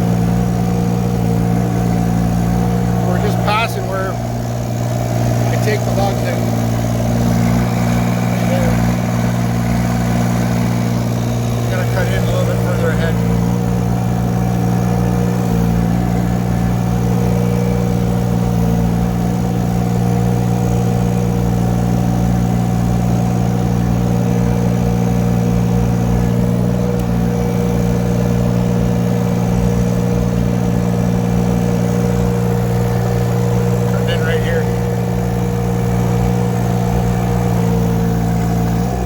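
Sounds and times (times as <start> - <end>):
excavator engine running: 0.0 - 39.0.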